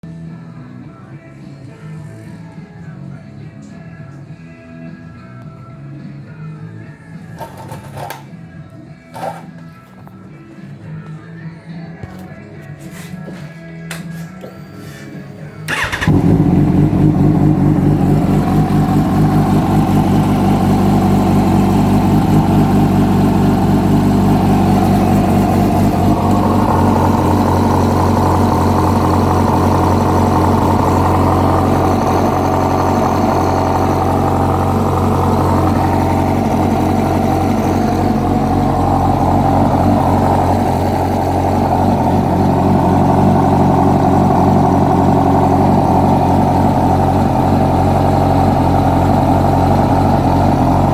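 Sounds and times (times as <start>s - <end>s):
motorcycle engine idling: 15.7s - 50.9s.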